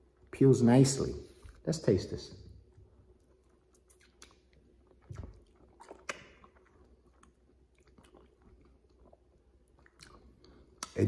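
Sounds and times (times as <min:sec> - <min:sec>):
wet chewing and mouth sounds: 0:02.6 - 0:11.0
mouth smack: 0:05.1 - 0:06.6.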